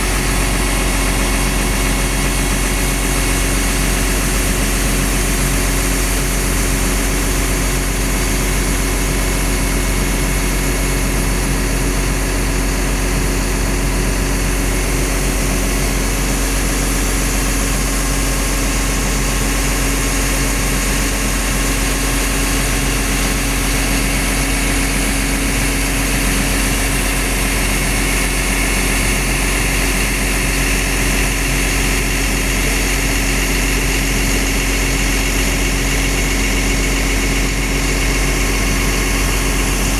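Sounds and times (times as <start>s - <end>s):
excavator diesel engine droning: 0.0s - 8.5s, 21.4s - 39.9s.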